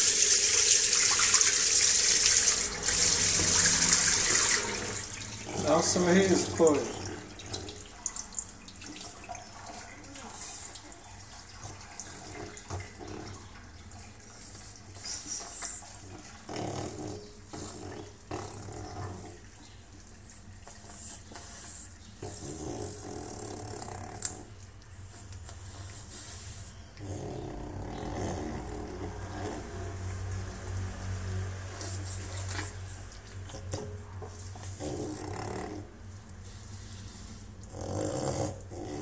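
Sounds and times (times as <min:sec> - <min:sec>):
water splashing: 0:00.0 - 0:16.4
dog snoring and snorting: 0:01.8 - 0:07.8, 0:10.1 - 0:19.6, 0:20.7 - 0:39.0.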